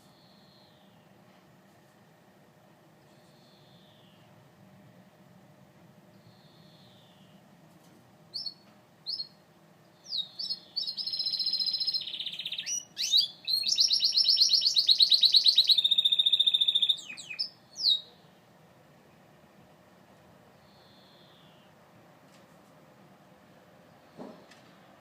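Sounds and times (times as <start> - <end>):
canary singing: 8.3 - 18.2.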